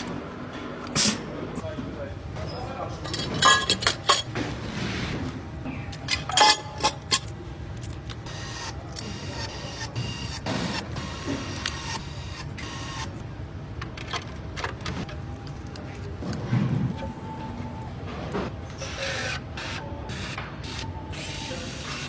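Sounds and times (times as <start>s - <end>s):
low machine hum: 0.0s - 22.0s
tools and parts clattering: 2.4s - 5.3s, 5.9s - 8.2s.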